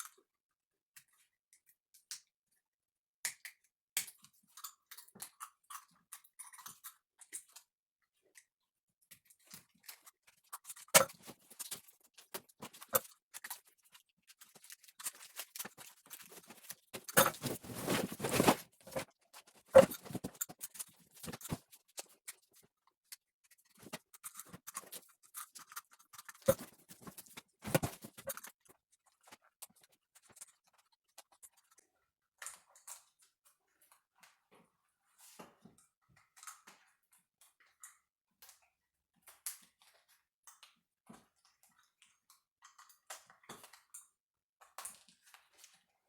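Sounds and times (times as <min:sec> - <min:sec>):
wiring harness clicking and rustling: 0:09.9 - 0:22.5, 0:23.8 - 0:28.5
scraping: 0:15.3 - 0:19.1.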